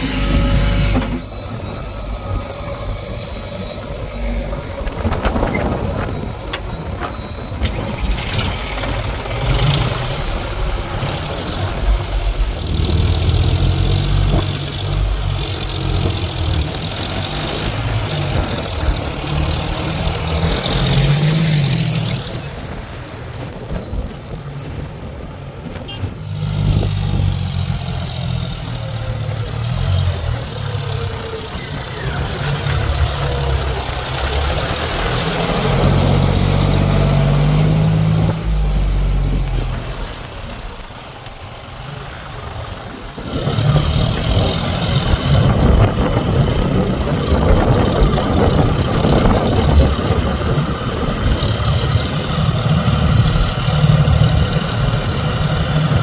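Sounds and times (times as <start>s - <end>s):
diesel engine working: 0.0s - 56.0s.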